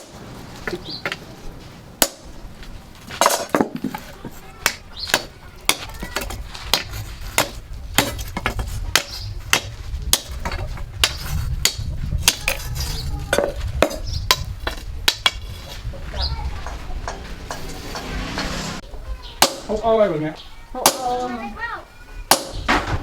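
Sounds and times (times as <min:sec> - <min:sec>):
low steady rumble: 0:13.1 - 0:19.2
hammer striking steel: 0:16.6 - 0:18.8.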